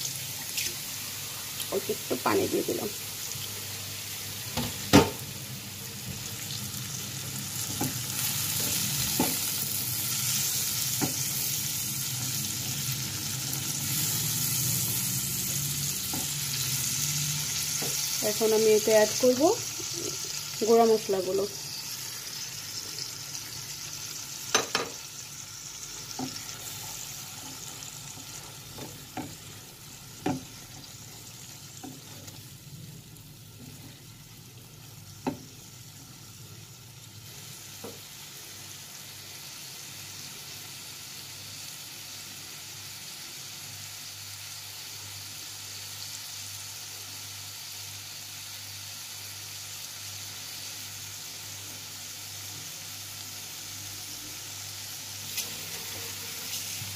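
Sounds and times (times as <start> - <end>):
onions sizzling in oil: 0.0 - 56.9
spoon knocking against pan: 24.5 - 25.0.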